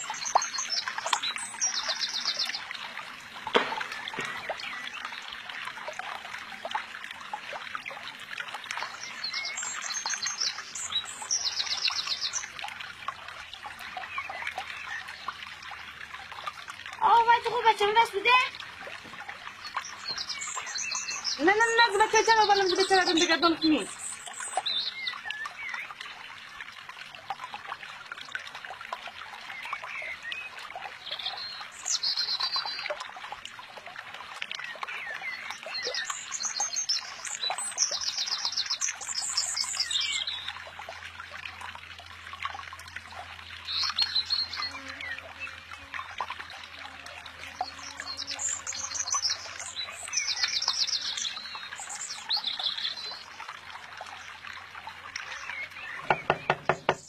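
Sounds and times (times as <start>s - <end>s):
stream trickling: 0.0s - 57.0s
birds chirping in trills: 8.8s - 12.6s, 19.4s - 25.9s, 34.6s - 40.6s, 43.5s - 45.6s, 47.5s - 53.4s, 55.2s - 57.0s.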